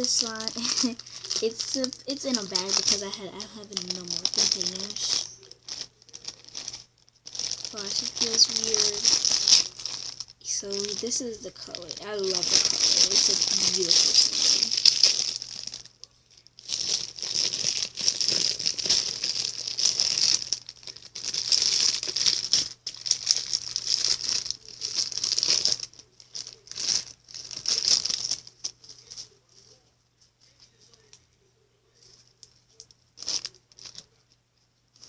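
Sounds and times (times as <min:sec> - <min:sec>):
plastic bag crinkling: 0:00.0 - 0:29.8, 0:31.9 - 0:34.3.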